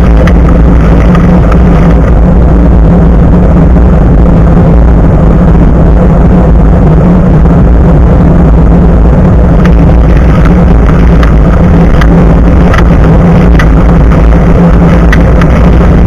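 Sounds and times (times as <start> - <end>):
sharp clicks and rattles: 0.0 - 4.7, 8.2 - 16.0
bicycle road noise: 0.0 - 16.0
wind rumble: 0.0 - 16.0.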